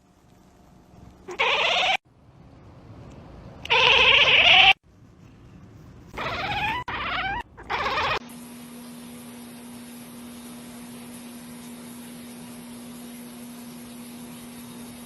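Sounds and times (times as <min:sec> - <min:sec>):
low hum with hiss: 0:00.0 - 0:15.0
cat meowing: 0:01.3 - 0:02.0, 0:03.7 - 0:04.8, 0:06.2 - 0:08.2.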